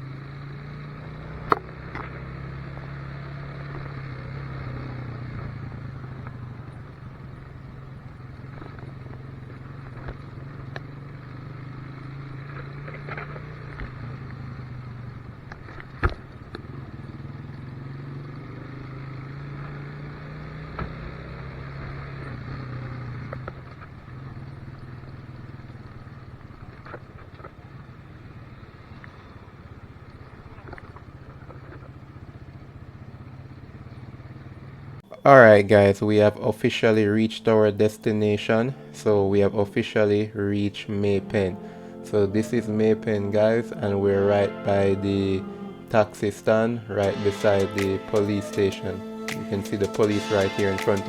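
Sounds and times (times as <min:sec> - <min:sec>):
motorcycle engine running: 0:00.0 - 0:35.2.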